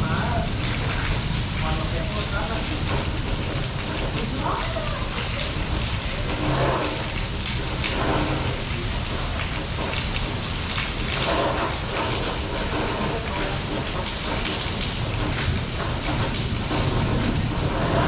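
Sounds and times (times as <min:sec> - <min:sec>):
steady rain with drop hits: 0:00.0 - 0:18.0.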